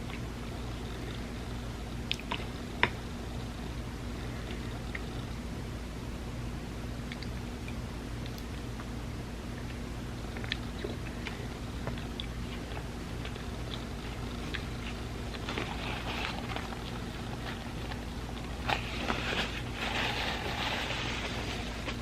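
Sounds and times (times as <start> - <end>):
steady low hum: 0.0 - 22.0
wet chewing with mouth clicks: 7.0 - 8.9, 9.6 - 18.9.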